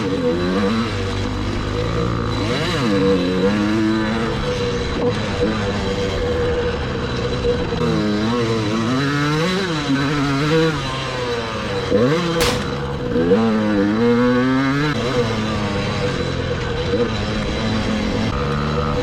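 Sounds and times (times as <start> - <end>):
dirt bike engine revving: 0.0 - 6.1, 7.8 - 19.0
sharp click: 12.4 - 13.1.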